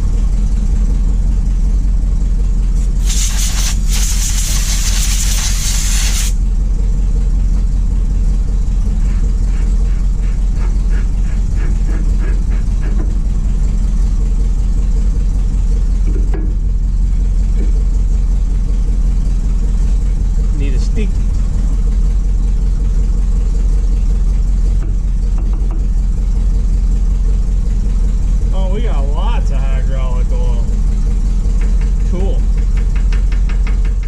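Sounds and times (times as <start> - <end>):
truck engine idling: 0.0 - 34.0
loud hiss of air: 2.8 - 6.4.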